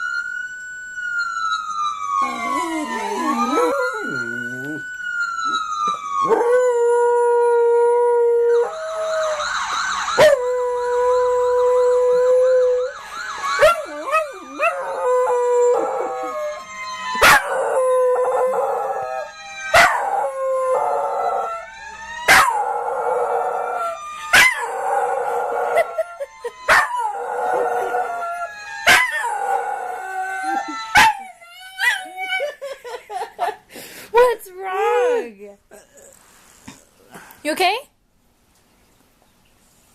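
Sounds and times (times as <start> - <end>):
fire truck siren: 0.0 - 35.2
dog howling: 2.2 - 4.8.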